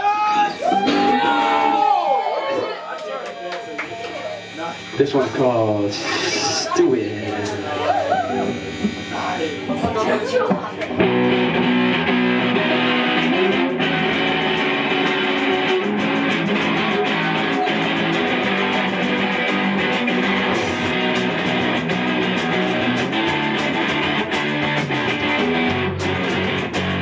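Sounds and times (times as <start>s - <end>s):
strummed electric guitar: 0.0s - 1.8s, 3.3s - 27.0s
live rock band playing: 0.4s - 1.8s, 3.8s - 27.0s
drum and cymbal hits: 13.1s - 27.0s.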